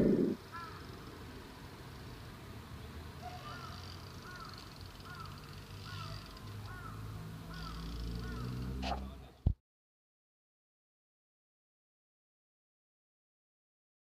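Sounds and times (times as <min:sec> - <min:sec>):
bird calling: 0:00.0 - 0:00.9, 0:03.2 - 0:09.0
low outdoor background hum: 0:00.0 - 0:09.6.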